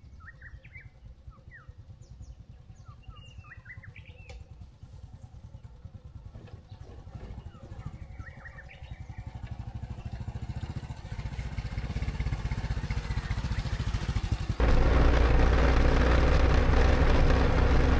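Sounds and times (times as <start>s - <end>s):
motorcycle engine running: 0.2s - 17.9s
rushing noise: 14.6s - 17.9s.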